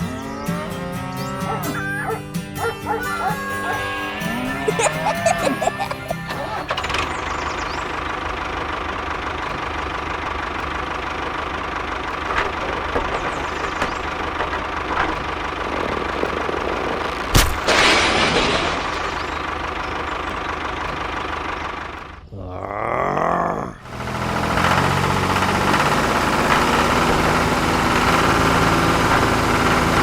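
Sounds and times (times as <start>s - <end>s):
motor running: 0.0s - 17.3s, 23.8s - 30.0s.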